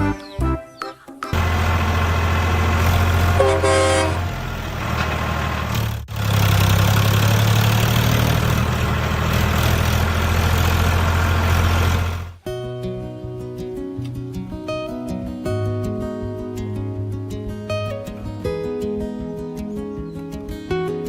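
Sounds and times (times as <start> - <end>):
truck engine humming: 0.0 - 12.4
short horn toot: 3.4 - 4.2.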